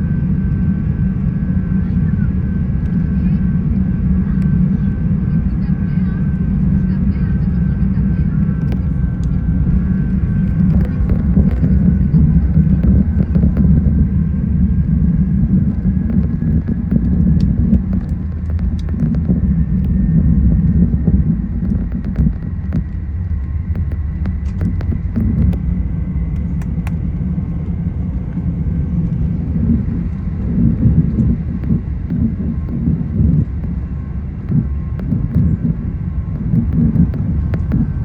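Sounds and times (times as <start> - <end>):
airplane cabin rumble: 0.0 - 38.0
light clicks and rattles: 8.6 - 13.9, 21.6 - 25.7.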